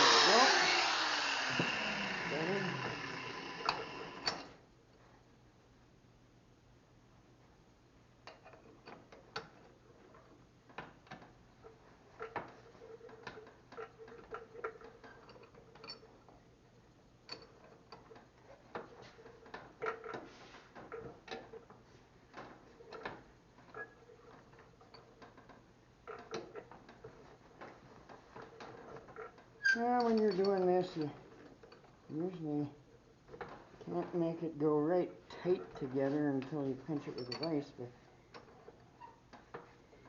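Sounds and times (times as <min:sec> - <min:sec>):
metal parts clicking and tapping: 0:08.2 - 0:16.4, 0:17.2 - 0:32.4, 0:35.3 - 0:40.0.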